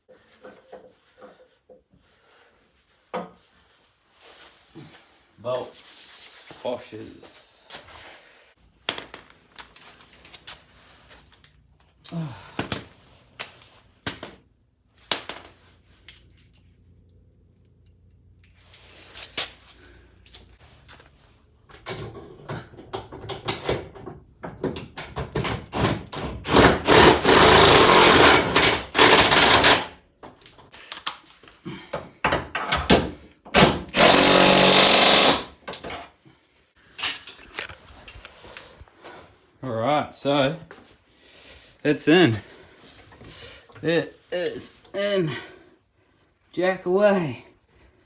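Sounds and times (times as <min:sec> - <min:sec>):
tools and bolts clinking: 0:14.9 - 0:16.7, 0:17.7 - 0:19.3, 0:20.2 - 0:30.7, 0:37.0 - 0:38.2
impact wrench hammering: 0:25.4 - 0:29.9, 0:33.6 - 0:35.5.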